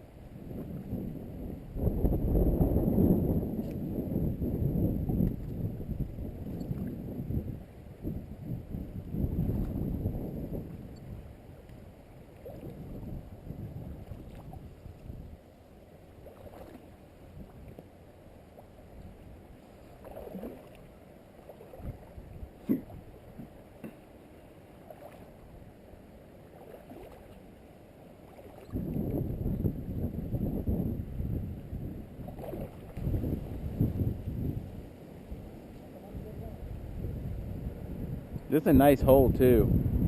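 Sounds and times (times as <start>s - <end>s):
water sloshing around wading legs: 12.2s - 13.0s, 13.8s - 15.2s, 16.0s - 25.7s, 26.4s - 29.2s, 32.2s - 33.3s.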